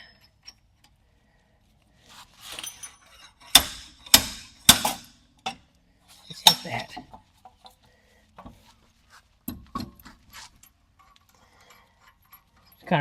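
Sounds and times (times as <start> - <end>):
metal parts rattling: 2.5 - 4.6.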